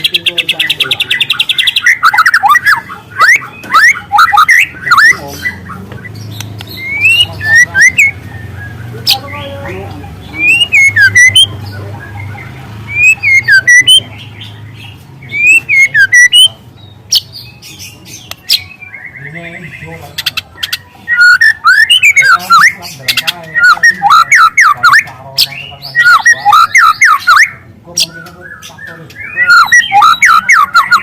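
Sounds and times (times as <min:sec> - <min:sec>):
bird singing whistled phrases: 0:00.0 - 0:06.1, 0:06.7 - 0:09.2, 0:10.3 - 0:12.3, 0:12.9 - 0:14.1, 0:15.2 - 0:17.4, 0:20.6 - 0:31.0.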